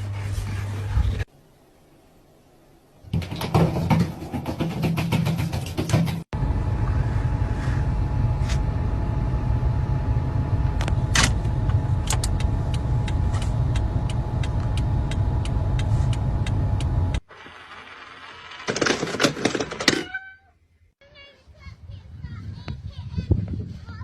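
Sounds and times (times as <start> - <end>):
vehicle rumbling: 5.6 - 18.6.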